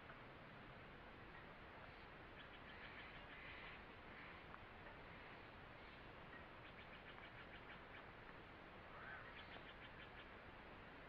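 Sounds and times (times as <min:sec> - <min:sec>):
faint forest ambience: 0:00.0 - 0:11.0
bird chirp: 0:01.8 - 0:08.1, 0:08.9 - 0:10.4.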